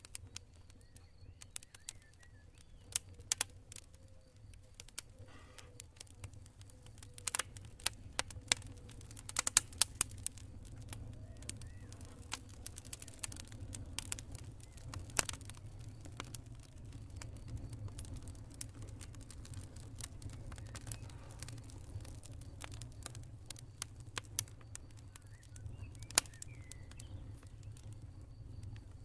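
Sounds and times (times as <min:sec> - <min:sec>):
campfire crackling and popping: 0:00.0 - 0:29.0.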